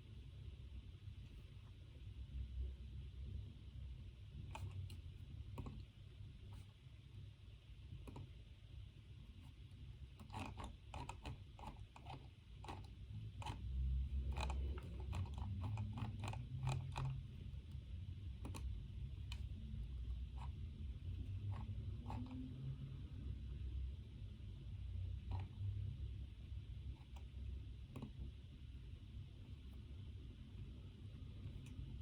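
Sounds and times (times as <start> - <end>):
low room hum: 0.0 - 32.0
light clicks and taps at a desk: 4.4 - 6.7, 7.9 - 8.4, 9.3 - 22.6, 25.2 - 25.9, 26.8 - 28.4, 31.4 - 32.0.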